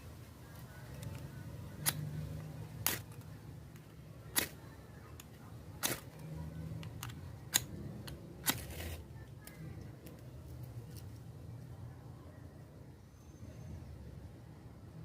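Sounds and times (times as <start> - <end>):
ferro rod scraping: 8.4 - 9.0.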